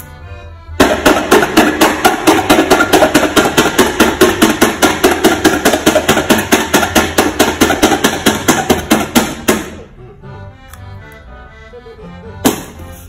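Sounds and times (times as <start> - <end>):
rapid even knocking: 0.8 - 9.8.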